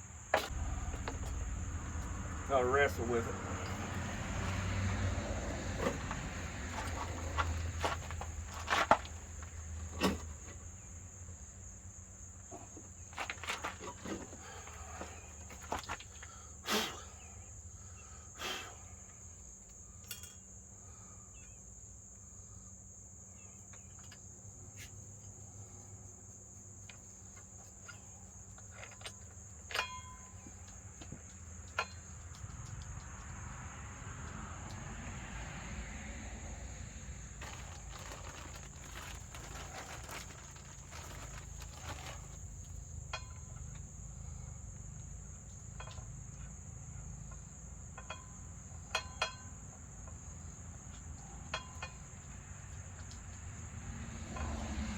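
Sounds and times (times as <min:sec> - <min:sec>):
low hum: 0:00.5 - 0:07.3.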